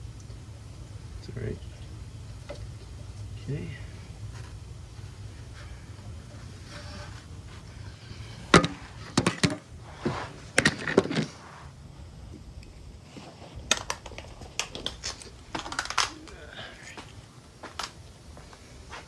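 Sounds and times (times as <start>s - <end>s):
tools and parts clicking and knocking: 13.7s - 16.3s.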